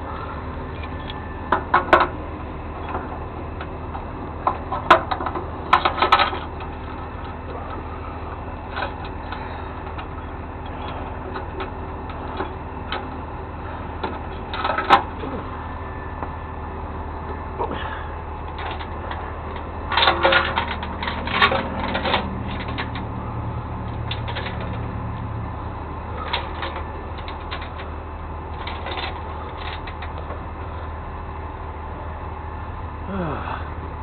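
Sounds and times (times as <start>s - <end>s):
vehicle engine idling: 0.0s - 34.0s
rapid clicking and rattling: 2.8s - 13.3s, 13.9s - 15.4s, 18.4s - 23.1s, 23.8s - 24.9s, 26.1s - 30.6s.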